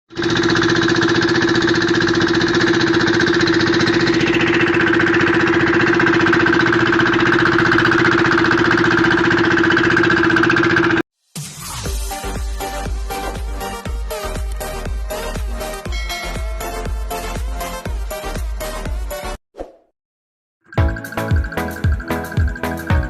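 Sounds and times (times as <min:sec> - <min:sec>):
boat engine running: 0:00.1 - 0:11.0, 0:12.8 - 0:18.5.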